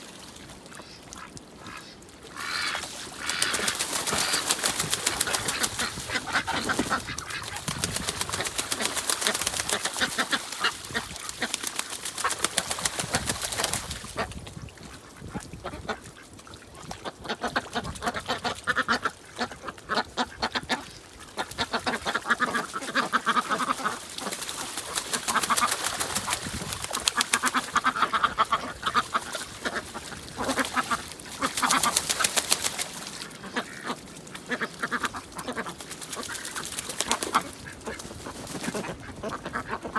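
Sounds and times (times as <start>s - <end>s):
ducks quacking: 0.7s - 14.4s, 17.0s - 39.9s.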